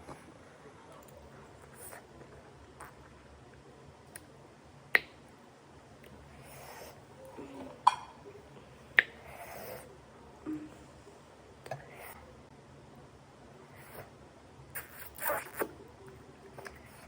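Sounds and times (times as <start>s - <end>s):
soft mouth and rustling noise: 1.0s - 4.4s, 13.8s - 17.0s.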